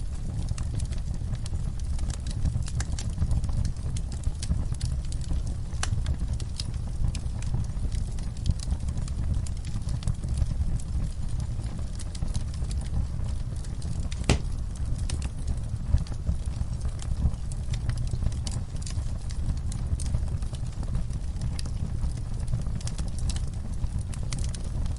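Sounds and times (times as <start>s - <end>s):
fire crackling and popping: 0.0s - 24.9s
fire rumbling: 0.0s - 24.9s.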